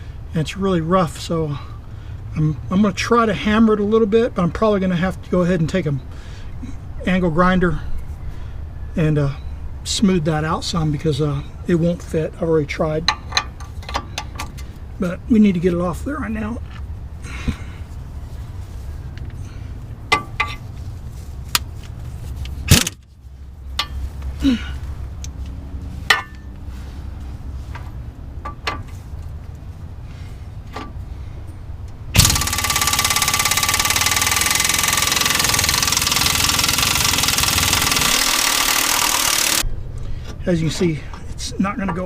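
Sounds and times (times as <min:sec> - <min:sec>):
power tool running: 0:32.2 - 0:39.7.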